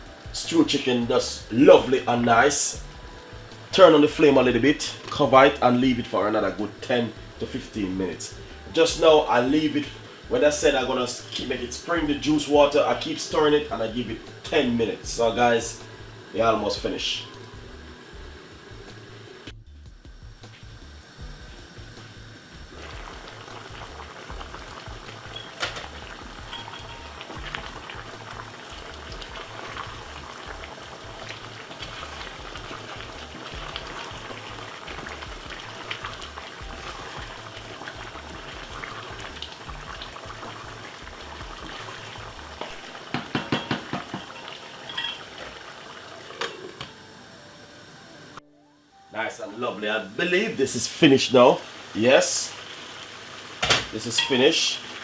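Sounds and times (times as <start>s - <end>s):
pot simmering and bubbling: 0.0s - 48.4s, 50.0s - 55.0s
sharp clattering knocks: 43.1s - 44.3s.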